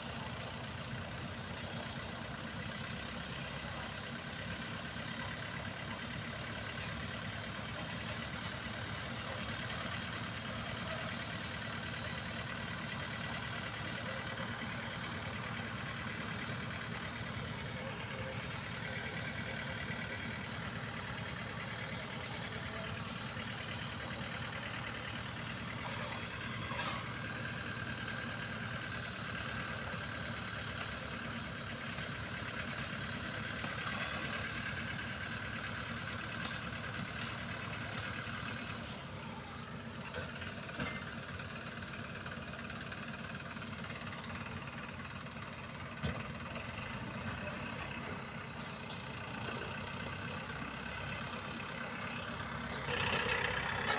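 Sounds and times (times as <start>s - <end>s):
heavy diesel engine running: 0.0s - 53.9s.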